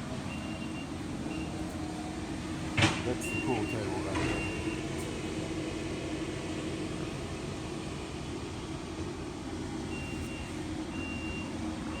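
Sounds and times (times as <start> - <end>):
reversing alarm beeping: 0.3 - 1.6, 3.2 - 4.8, 10.0 - 12.0.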